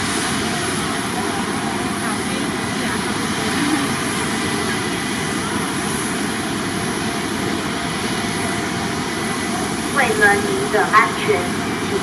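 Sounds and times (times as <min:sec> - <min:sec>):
jet engines rushing: 0:00.0 - 0:12.0
high-pitched whine: 0:07.2 - 0:12.0.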